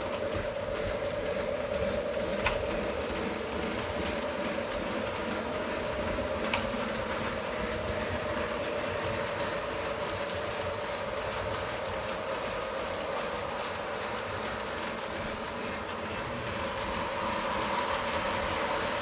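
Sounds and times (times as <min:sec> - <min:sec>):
model train motor whine: 0:00.0 - 0:19.0
wheels rumbling on track: 0:00.0 - 0:19.0.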